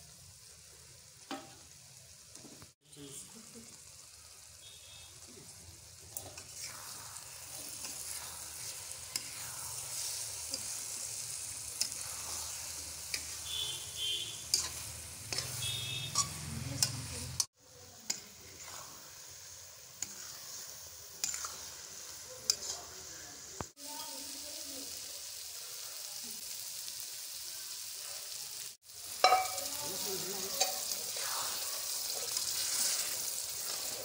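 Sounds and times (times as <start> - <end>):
eggs sizzling in oil: 0.0 - 34.0
spoon stirring and clinking on pan: 14.5 - 17.5, 20.0 - 22.9, 29.2 - 29.8, 30.4 - 31.1.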